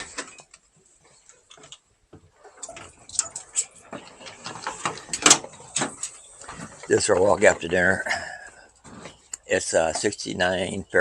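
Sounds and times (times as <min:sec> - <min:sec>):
footsteps of person and dogs: 0:01.0 - 0:08.0.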